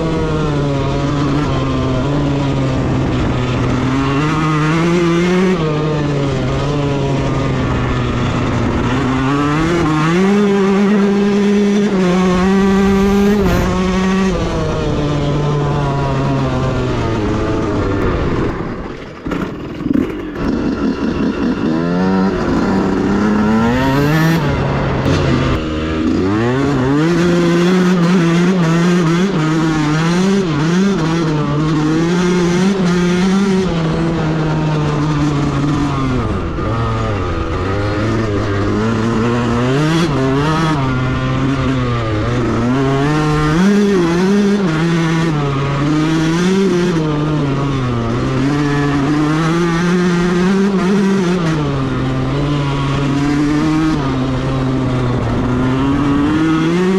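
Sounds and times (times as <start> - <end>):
two-stroke engine revving: 0.0 - 56.9.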